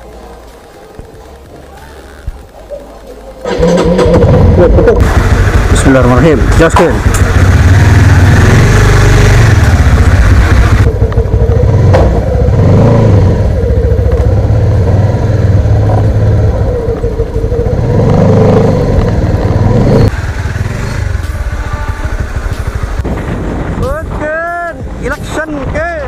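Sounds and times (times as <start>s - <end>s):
motorcycle engine revving: 3.4s - 23.8s.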